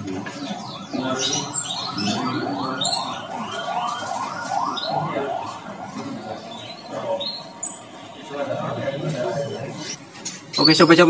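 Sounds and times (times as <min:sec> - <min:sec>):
caged birds whistling: 0:00.2 - 0:11.0
high bird chirps and squeaks: 0:06.7 - 0:07.9, 0:09.8 - 0:11.0.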